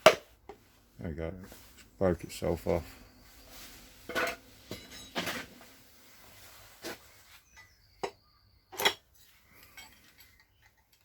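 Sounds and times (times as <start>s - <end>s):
metal engine parts clinking: 4.1s - 5.6s, 8.8s - 11.0s.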